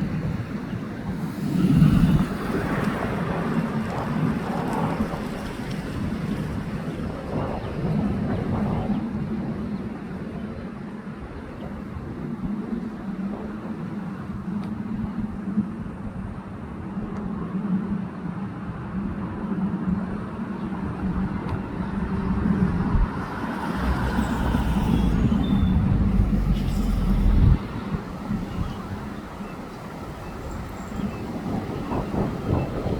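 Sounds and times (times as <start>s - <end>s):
jet airliner passing overhead: 19.6s - 32.9s.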